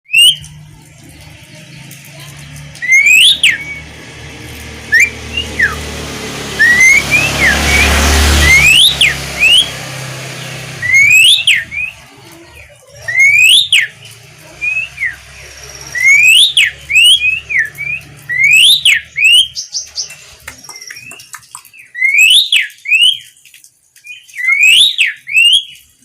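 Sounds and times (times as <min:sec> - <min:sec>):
starling whistled song: 0:00.0 - 0:00.6, 0:02.8 - 0:04.0, 0:04.8 - 0:06.0, 0:06.6 - 0:12.0, 0:13.0 - 0:23.4, 0:24.0 - 0:25.9.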